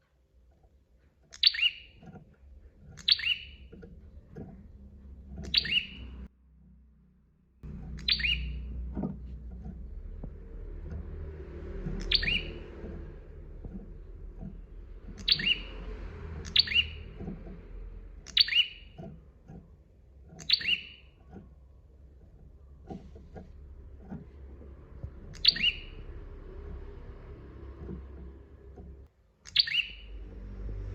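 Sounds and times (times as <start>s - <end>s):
low hum: 2.0s - 29.1s, 29.9s - 30.9s
bird calling sharp high notes: 5.4s - 6.1s, 7.9s - 8.7s, 12.0s - 12.7s, 15.2s - 15.8s, 25.2s - 26.8s.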